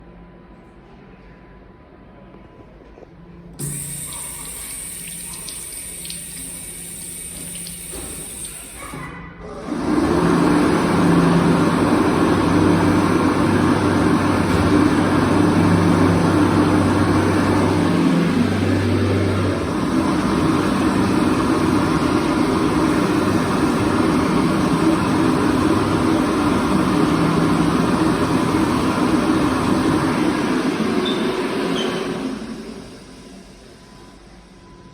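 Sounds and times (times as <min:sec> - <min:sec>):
hand dryer blowing air: 0:03.6 - 0:09.0, 0:09.7 - 0:33.2.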